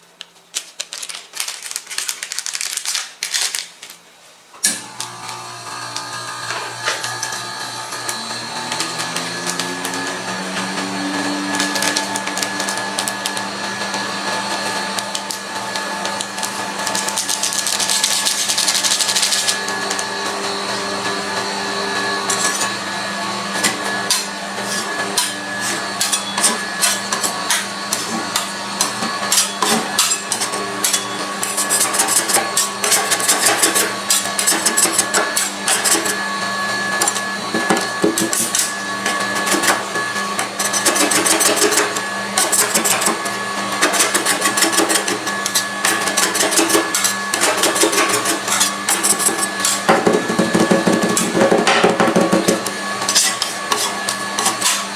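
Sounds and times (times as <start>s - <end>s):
machine hum: 4.6s - 31.9s
spatula scraping: 5.7s - 54.9s.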